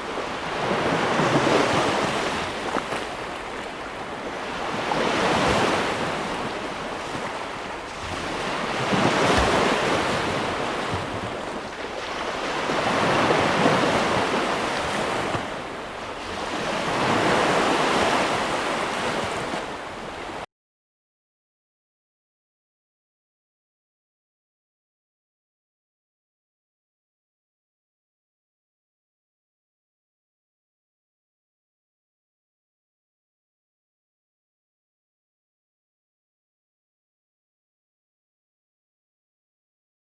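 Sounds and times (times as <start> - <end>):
sea waves breaking on shore: 0.0 - 20.5.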